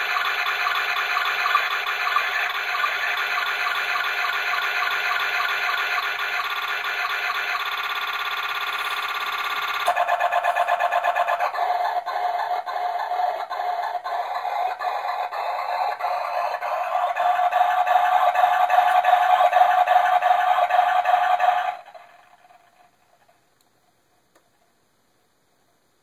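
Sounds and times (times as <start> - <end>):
glitched looping electronic sound: 0.0 - 11.5.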